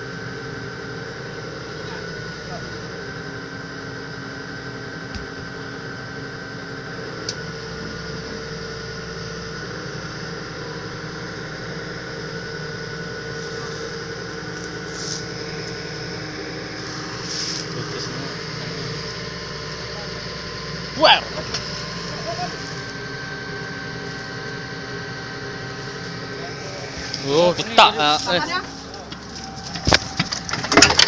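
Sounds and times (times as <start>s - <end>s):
lifting machine engine running: 0.0s - 31.0s
high whine: 7.0s - 31.0s.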